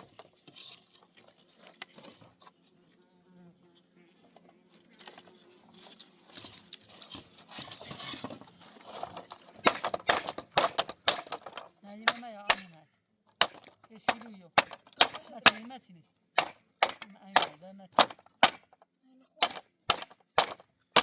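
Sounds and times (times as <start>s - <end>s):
rustling and handling noises: 0.0s - 3.1s, 3.7s - 11.8s
person speaking: 11.6s - 16.2s, 16.9s - 18.2s.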